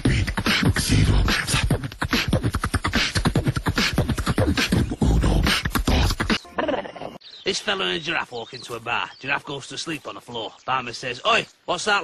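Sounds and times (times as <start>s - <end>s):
person beatboxing: 0.0s - 6.4s.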